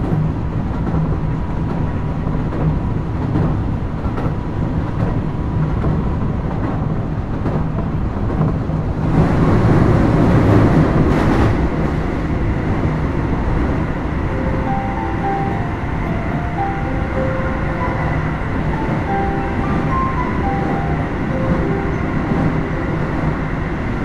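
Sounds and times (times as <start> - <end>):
train wheels rumbling on rail: 0.0 - 24.0
faint high tones changing pitch: 14.2 - 23.1.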